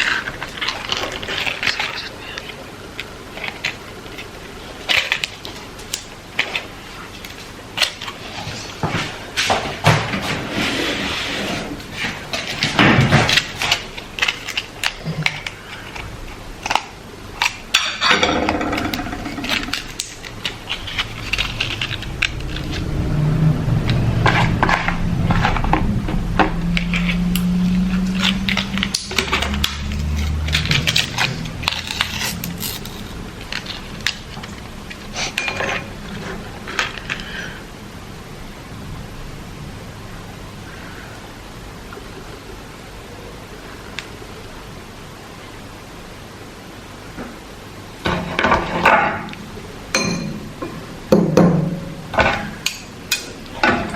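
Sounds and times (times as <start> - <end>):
dishes and utensils clattering: 17.8 - 22.0, 35.2 - 37.1, 48.1 - 49.3, 49.9 - 53.9
low hum: 18.1 - 33.4.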